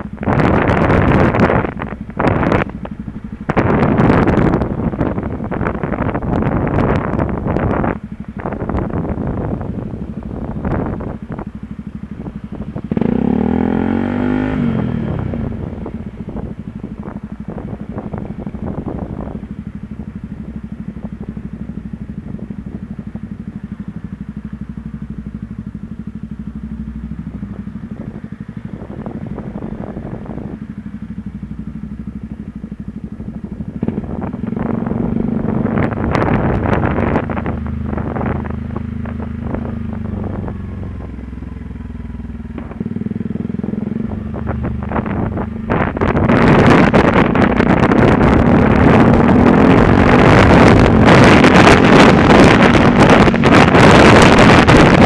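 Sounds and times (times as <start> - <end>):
motorcycle engine running: 0.0 - 55.0
gusts of rushing noise: 42.6 - 55.0.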